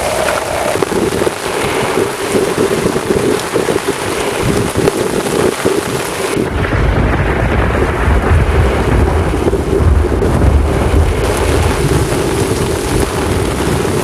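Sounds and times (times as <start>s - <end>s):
heavy rain pouring: 0.0s - 14.0s
low rumble of thunder: 6.3s - 14.0s.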